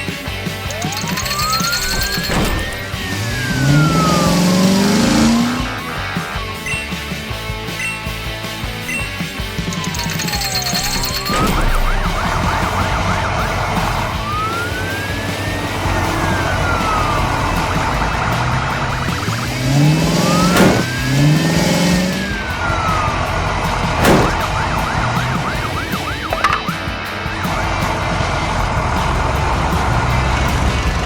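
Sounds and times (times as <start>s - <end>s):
emergency vehicle siren: 0.6s - 6.6s, 9.6s - 31.0s
sharp hits: 0.7s - 6.0s, 9.8s - 23.2s, 23.8s - 27.0s.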